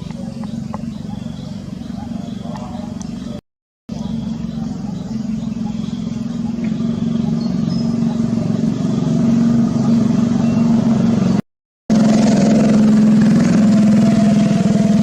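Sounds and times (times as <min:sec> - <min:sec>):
motor hum: 0:00.0 - 0:15.0.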